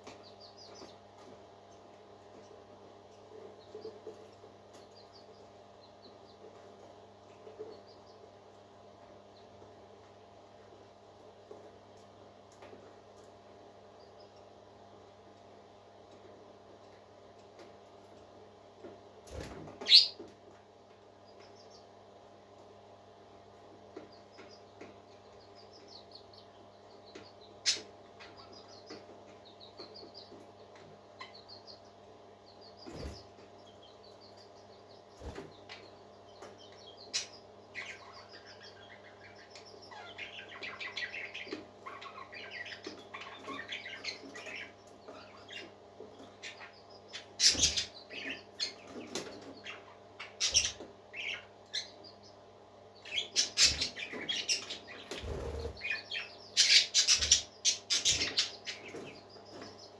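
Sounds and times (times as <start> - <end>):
parakeets chirping and warbling: 19.2 - 20.2, 25.3 - 59.9.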